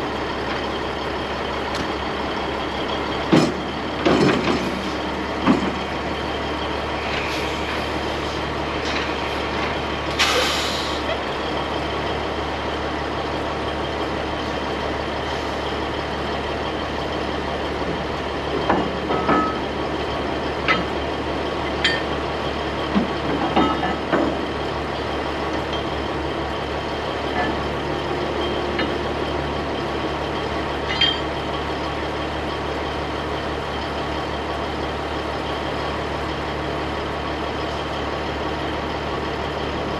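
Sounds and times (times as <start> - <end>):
truck engine idling: 0.0 - 39.9
metal clanks and knocks: 3.2 - 6.0, 17.9 - 19.7, 21.8 - 22.2, 22.9 - 24.5, 30.8 - 31.4
air hiss: 10.2 - 11.1.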